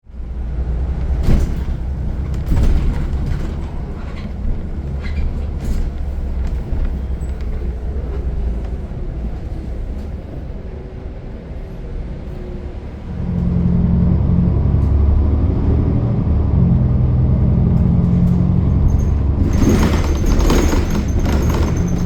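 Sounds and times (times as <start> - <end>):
bus engine and road rumble: 0.0 - 22.0
rattles and clunks: 0.7 - 10.2, 17.7 - 22.0.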